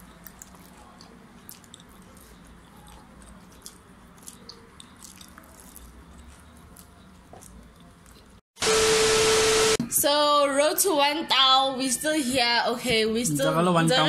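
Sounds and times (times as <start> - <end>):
person biting and chewing food: 0.0 - 8.4.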